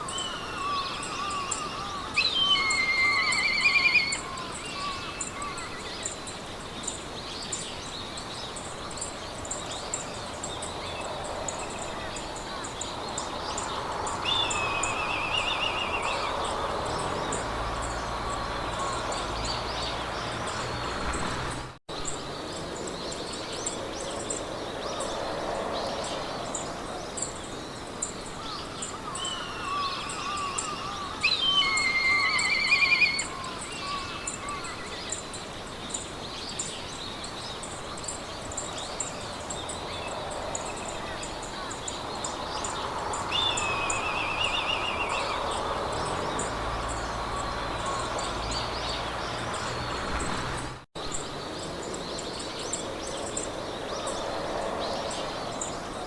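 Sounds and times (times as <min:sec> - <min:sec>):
birds singing trilling phrases: 0:00.0 - 0:07.0, 0:12.1 - 0:21.1, 0:28.0 - 0:36.9, 0:37.6 - 0:50.7
wind in grass: 0:00.0 - 0:56.0.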